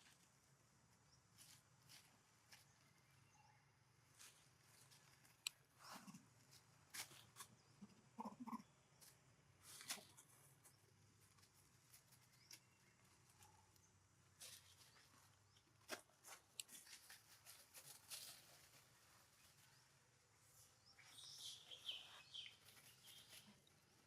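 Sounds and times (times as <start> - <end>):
high chirping calls: 20.9 - 23.5.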